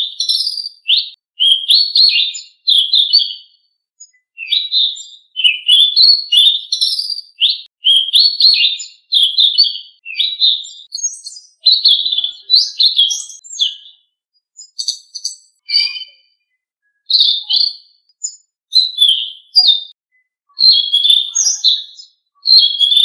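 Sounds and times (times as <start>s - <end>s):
songbird chirping and whistling: 0.0s - 23.0s.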